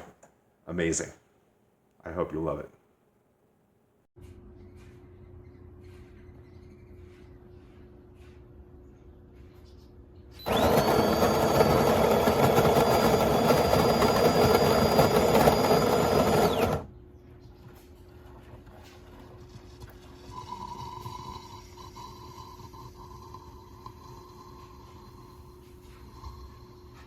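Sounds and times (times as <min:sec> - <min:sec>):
espresso machine pump buzzing: 0:10.4 - 0:16.9, 0:20.2 - 0:27.0.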